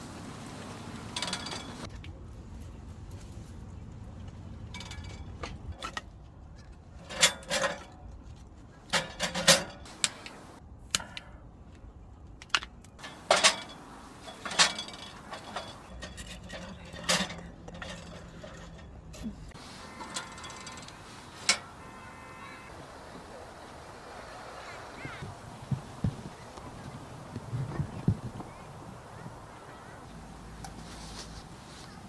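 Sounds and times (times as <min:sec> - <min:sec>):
sharp metal clinks and knocks: 0:13.0 - 0:19.0.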